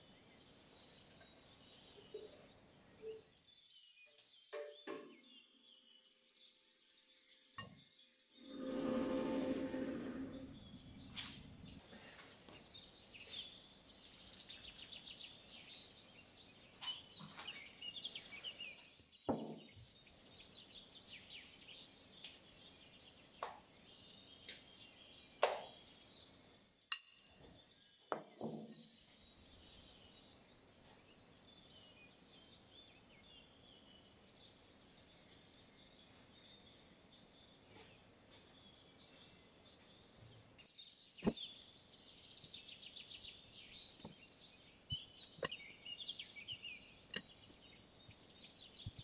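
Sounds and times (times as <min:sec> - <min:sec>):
bird chirps and trills: 0:07.6 - 0:11.8, 0:29.0 - 0:49.0.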